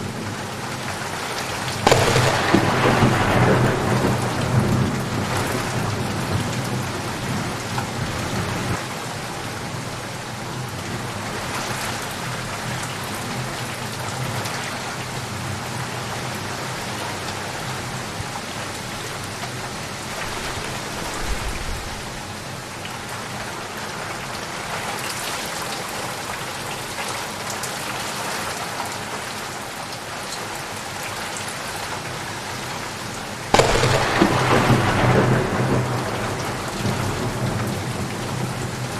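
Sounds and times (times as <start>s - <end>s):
heavy rain falling: 0.0s - 38.9s
low rumble of thunder: 1.8s - 7.6s, 33.6s - 38.9s.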